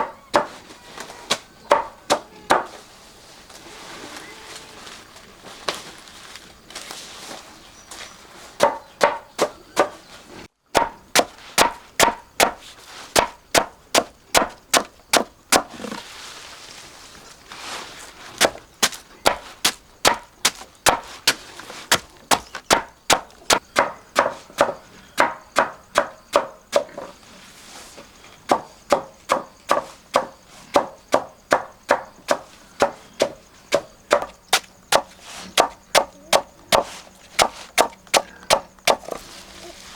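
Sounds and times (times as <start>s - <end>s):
knife chopping on wooden board: 10.8s - 12.6s.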